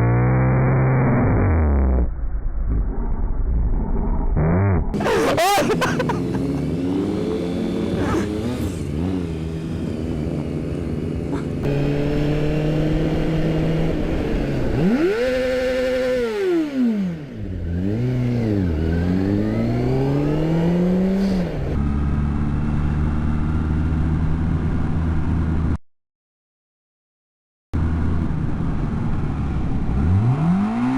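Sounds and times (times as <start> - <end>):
motorcycle engines revving: 4.4 - 23.8
road and wind noise: 5.0 - 25.8, 27.8 - 30.9.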